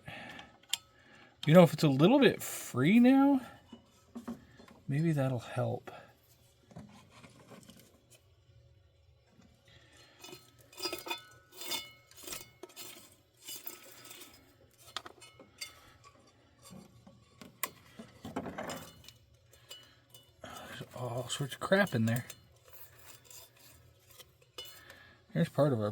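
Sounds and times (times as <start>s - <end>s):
metallic clinks and rattles of tools: 10.2s - 16.8s, 17.6s - 25.0s.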